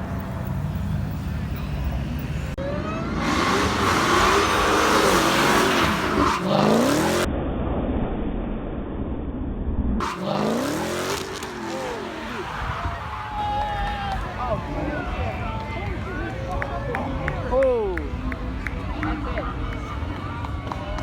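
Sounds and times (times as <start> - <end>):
car engine revving: 2.6 - 7.3, 10.0 - 12.8.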